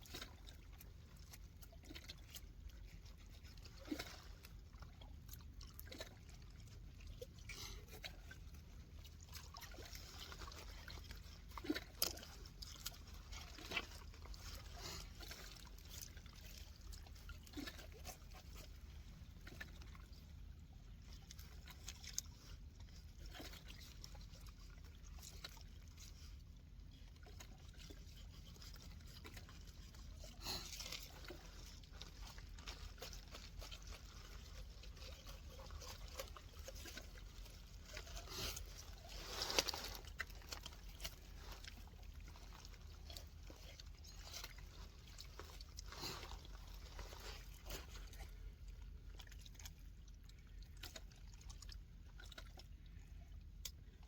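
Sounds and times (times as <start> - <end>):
water trickling and lapping: 0.0 - 54.0.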